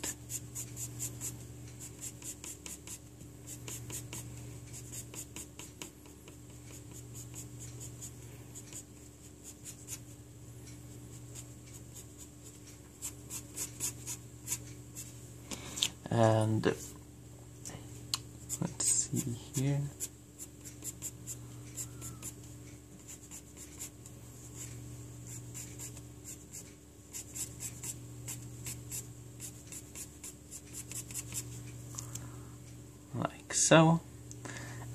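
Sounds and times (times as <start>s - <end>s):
low steady hum: 0.0s - 34.9s
pencil shading on paper: 0.1s - 10.1s, 19.5s - 22.4s.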